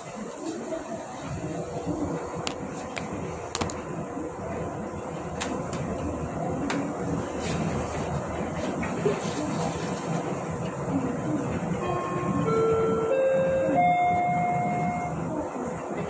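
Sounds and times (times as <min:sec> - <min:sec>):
train rumble and hiss: 0:00.0 - 0:16.0
sharp clicks and knocks: 0:02.4 - 0:03.8.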